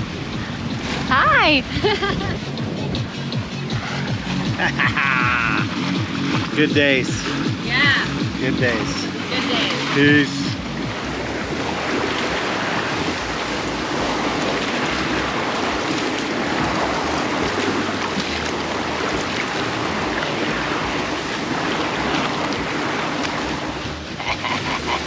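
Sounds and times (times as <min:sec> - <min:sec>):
water rushing along hull: 0:00.0 - 0:25.0
wind buffeting microphone: 0:00.0 - 0:25.0.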